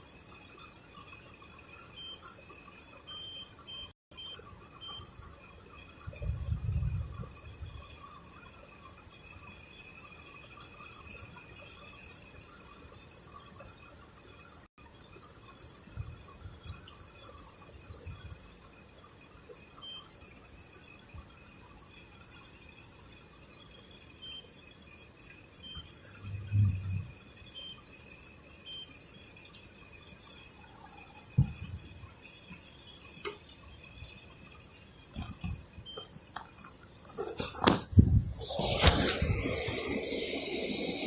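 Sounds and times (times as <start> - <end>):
insects chirping: 0.0 - 41.0
faint short chirps: 25.7 - 27.9.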